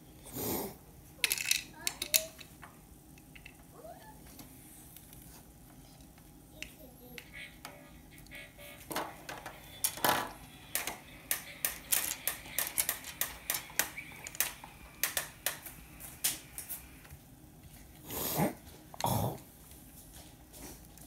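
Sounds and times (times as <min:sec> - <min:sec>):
small hard objects clicking: 0:10.7 - 0:16.4.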